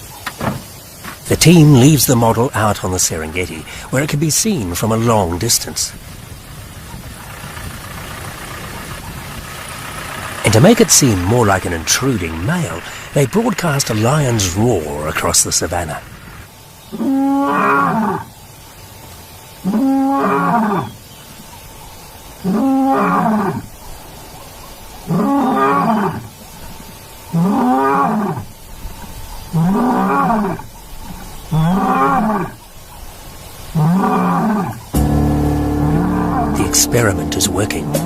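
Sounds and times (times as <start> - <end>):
lion roaring: 33.8 - 38.0.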